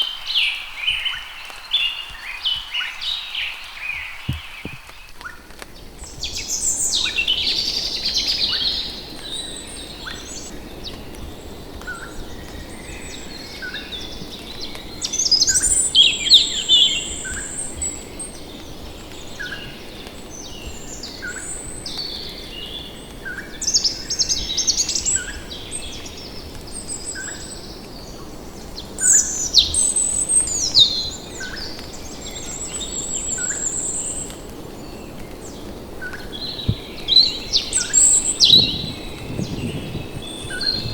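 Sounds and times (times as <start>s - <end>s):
forest hiss: 0.0s - 40.9s
birds chirping and trilling: 36.2s - 40.9s.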